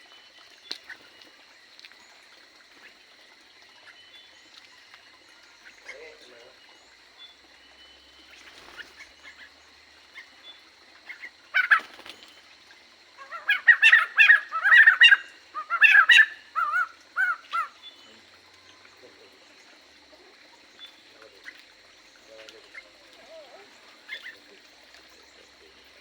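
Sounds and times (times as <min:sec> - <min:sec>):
birds calling loudly: 0:05.5 - 0:12.4, 0:13.1 - 0:26.0.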